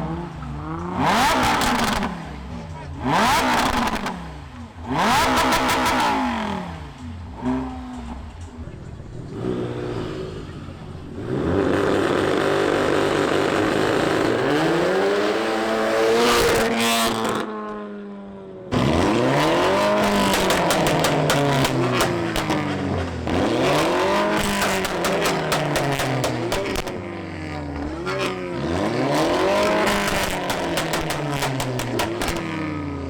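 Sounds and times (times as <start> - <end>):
car engine revving hard: 0.0 - 8.3, 11.2 - 17.5, 18.7 - 32.7
exhaust crackles: 18.7 - 32.8.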